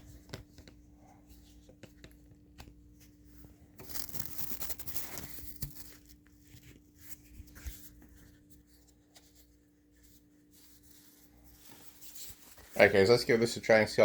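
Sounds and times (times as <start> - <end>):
plastic parts rustling and scraping: 3.3 - 13.5.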